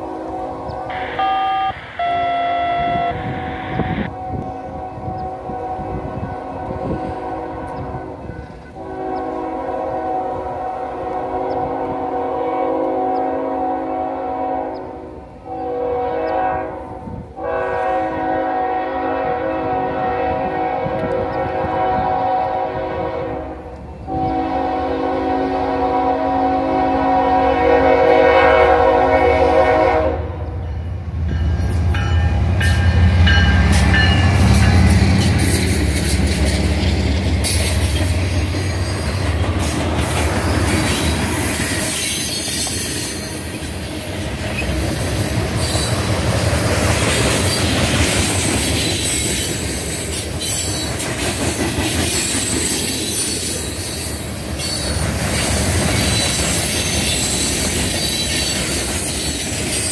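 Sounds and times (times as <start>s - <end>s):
high flange squeal: 0.0s - 5.2s
train air horn: 0.0s - 30.6s
locomotive engines rumbling: 0.0s - 59.9s
train wheel noise: 0.0s - 59.9s.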